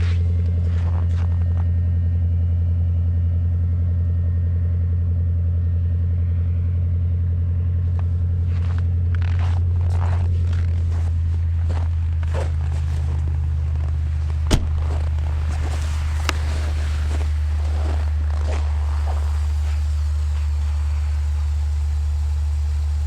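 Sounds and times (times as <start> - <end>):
car engine idling: 0.0 - 23.0
power steering pump whine: 0.0 - 23.0
short scuffing noises: 7.8 - 18.8.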